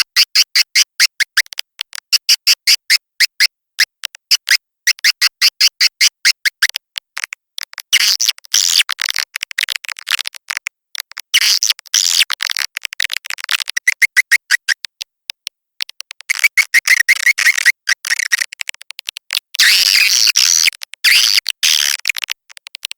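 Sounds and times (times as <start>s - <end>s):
swiftlet chirps and twittering: 16.3s - 18.3s.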